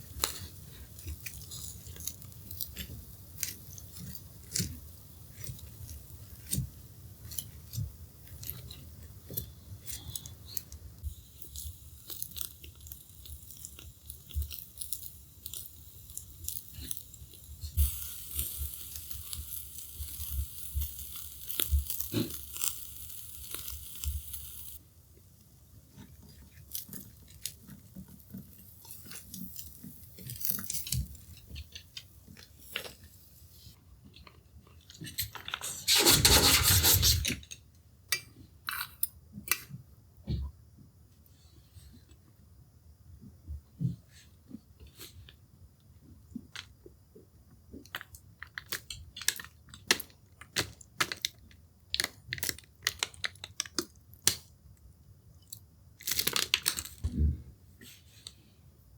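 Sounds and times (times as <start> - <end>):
charcoal crackling and popping: 0.0 - 24.8, 25.9 - 33.2, 47.9 - 54.6, 55.4 - 57.1
food sizzling on grill: 11.1 - 24.8.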